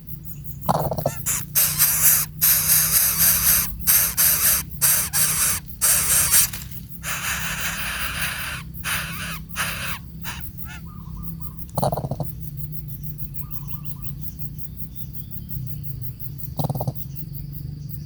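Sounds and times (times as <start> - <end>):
baby bird hissing calls: 0.9 - 11.0.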